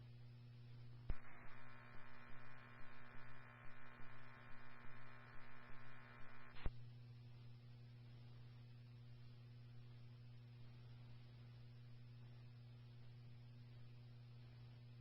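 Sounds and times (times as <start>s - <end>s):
steady radio hum: 1.0s - 6.7s
garbled radio audio: 1.1s - 6.7s
radio click: 1.1s - 6.7s
radio squelch click: 1.1s - 6.7s.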